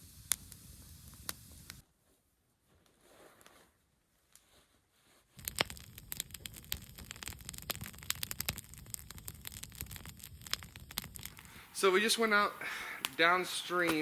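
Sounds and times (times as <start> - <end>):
campfire crackling and popping: 0.0 - 1.8, 5.4 - 14.0.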